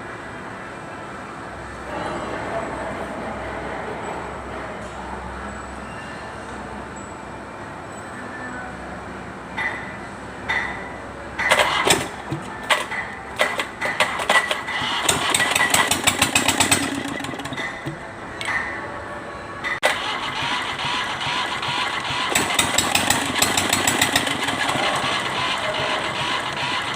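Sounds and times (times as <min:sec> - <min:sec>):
diesel engine cranking and running: 0:09.6 - 0:18.7, 0:19.6 - 0:26.9.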